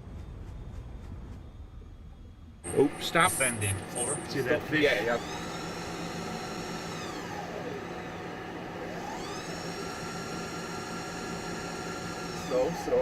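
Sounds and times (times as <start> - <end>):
low machinery hum: 0.0 - 13.0
thruster motors whining: 2.6 - 13.0.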